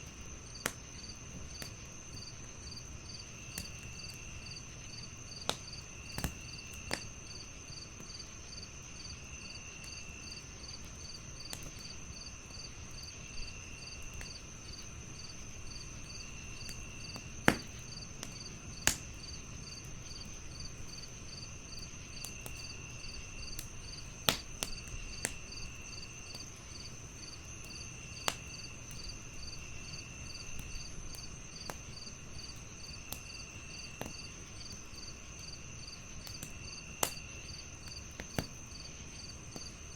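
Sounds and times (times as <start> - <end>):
crickets chirping: 0.0 - 39.9
fire crackling: 0.0 - 39.9
insect trill: 0.4 - 39.9
burning wood popping: 5.3 - 7.2, 13.8 - 39.9.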